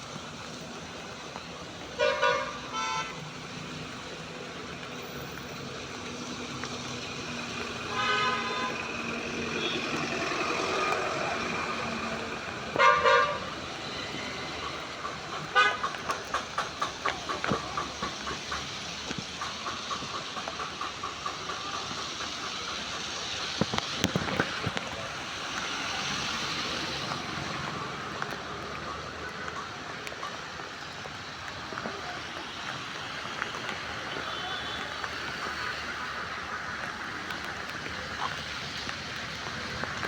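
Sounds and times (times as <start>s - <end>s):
rain hiss: 0.0s - 40.0s
traffic: 0.0s - 40.0s
vehicle horns honking: 2.0s - 3.2s, 7.9s - 8.8s, 12.8s - 13.4s, 15.5s - 15.8s.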